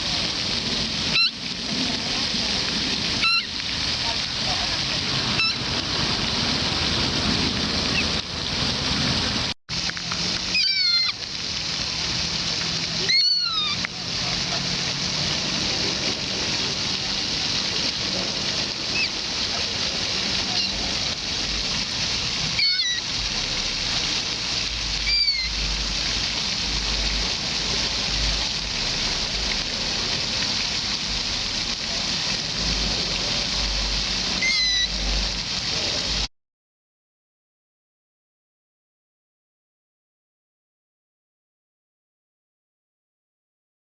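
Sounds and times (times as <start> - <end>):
water rushing: 0.0 - 36.3
falling bird calls: 10.6 - 11.2, 25.1 - 25.6, 34.4 - 34.9.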